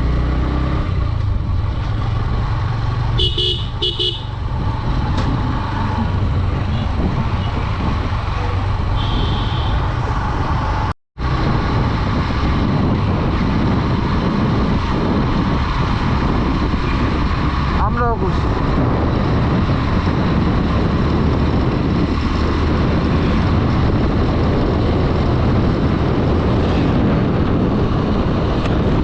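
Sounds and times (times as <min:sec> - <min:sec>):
wind and road noise: 0:00.0 - 0:29.0
motorcycle engine running: 0:01.2 - 0:10.3
vehicle horn toots: 0:03.2 - 0:04.4, 0:09.0 - 0:09.9.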